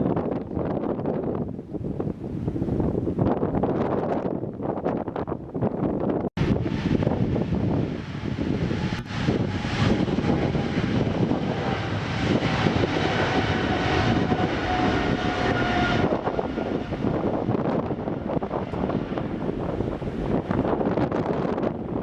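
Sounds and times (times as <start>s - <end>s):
thin engine whine: 6.4s - 21.8s
jet engines roaring: 6.4s - 22.0s.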